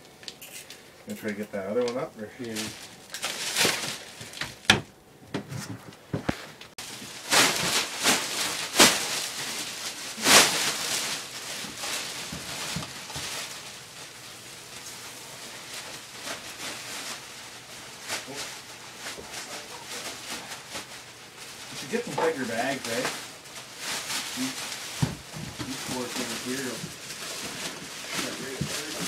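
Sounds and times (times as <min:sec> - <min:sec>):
flooring being torn up: 0:06.9 - 0:13.6.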